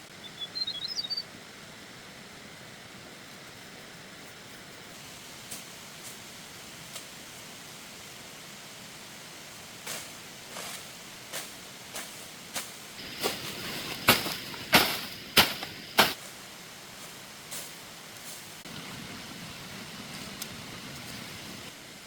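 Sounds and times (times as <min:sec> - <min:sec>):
steady hiss: 0:00.0 - 0:22.0
sharp knocks: 0:14.1 - 0:16.2.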